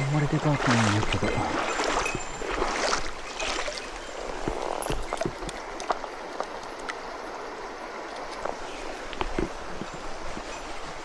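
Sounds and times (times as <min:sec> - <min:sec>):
stream water running: 0:00.0 - 0:11.0.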